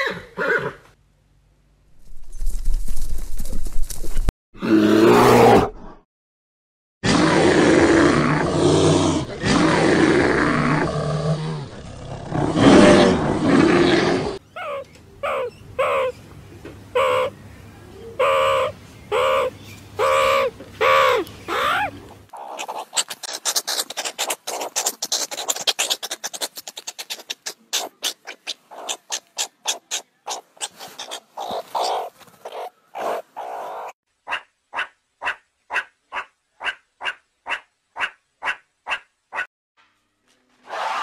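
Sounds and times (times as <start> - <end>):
animal calls: 12.6 - 16.2, 17.0 - 17.3, 18.2 - 39.5
animal chatter of clicks and chirps: 18.2 - 34.0.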